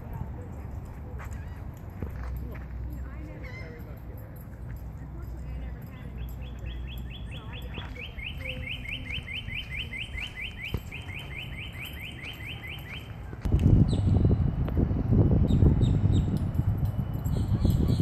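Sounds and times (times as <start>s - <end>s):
bird singing a fast trill: 5.9s - 13.1s
loud low rumbling: 13.5s - 18.0s.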